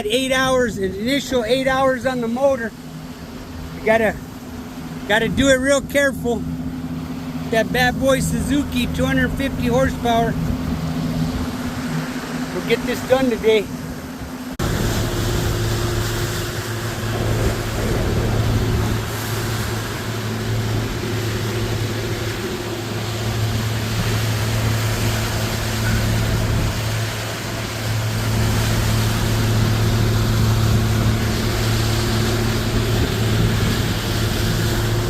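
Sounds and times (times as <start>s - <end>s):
outboard motor running: 0.0s - 35.0s
water rushing over hull: 0.0s - 35.0s.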